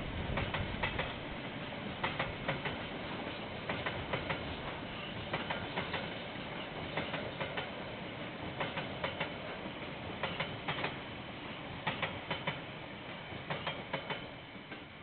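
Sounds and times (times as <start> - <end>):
steady rumble of train: 0.0 - 15.0
train wheels clacking over rail joints: 0.2 - 11.0, 11.8 - 15.0.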